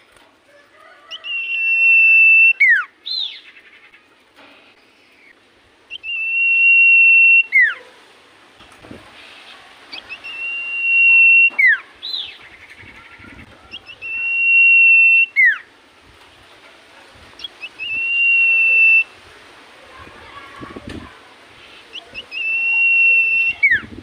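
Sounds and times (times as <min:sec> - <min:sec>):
bird singing high whistles: 0:01.2 - 0:03.3, 0:05.9 - 0:07.8, 0:10.0 - 0:12.3, 0:13.7 - 0:15.7, 0:17.4 - 0:19.1, 0:22.2 - 0:23.9.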